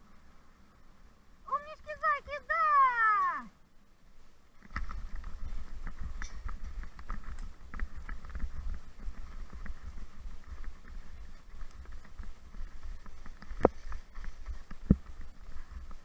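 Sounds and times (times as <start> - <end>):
light patter and clicking: 4.5 - 16.0
wind rumbling on microphone: 4.5 - 16.0.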